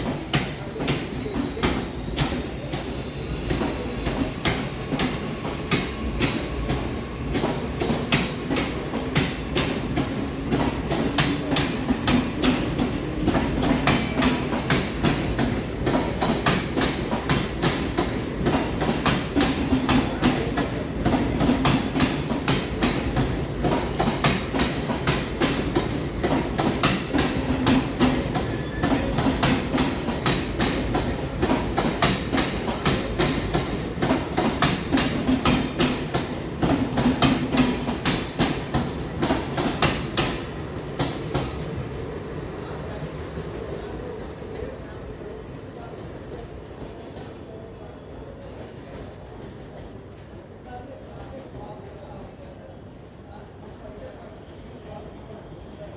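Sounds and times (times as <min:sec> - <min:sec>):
train wheels clattering: 0:00.0 - 0:42.0
train low rumble: 0:00.0 - 0:53.0.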